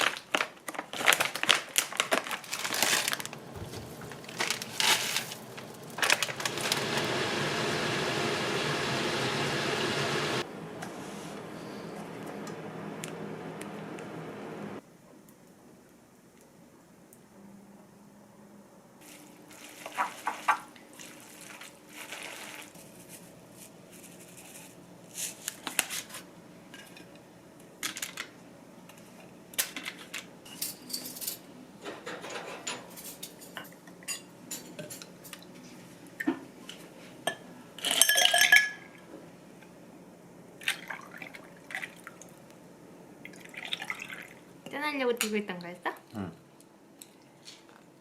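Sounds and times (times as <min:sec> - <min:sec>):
dishes and utensils clinking: 0:29.6 - 0:35.4, 0:36.2 - 0:38.9.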